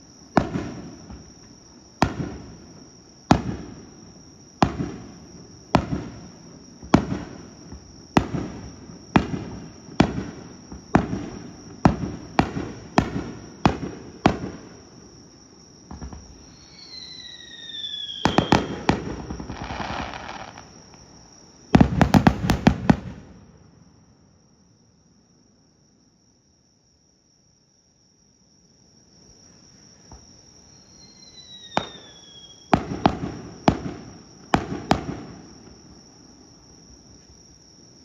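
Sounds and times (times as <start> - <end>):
falling firework whistle: 15.9 - 21.1, 21.7 - 23.7, 30.1 - 35.8
firework crackling: 16.3 - 20.8, 21.8 - 23.5.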